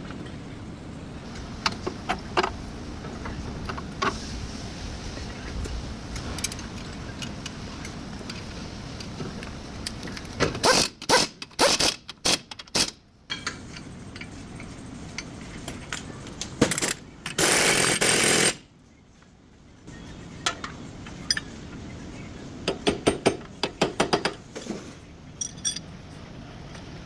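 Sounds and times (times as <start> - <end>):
low workshop background: 5.2 - 27.0
power tool bursts: 17.4 - 18.6.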